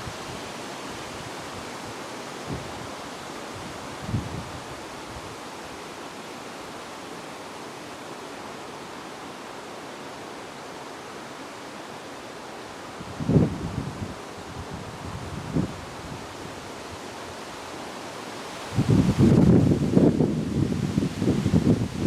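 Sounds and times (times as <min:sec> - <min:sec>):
wind blowing: 0:00.0 - 0:22.0
wind buffeting microphone: 0:03.6 - 0:05.3, 0:13.0 - 0:16.7, 0:18.7 - 0:22.0.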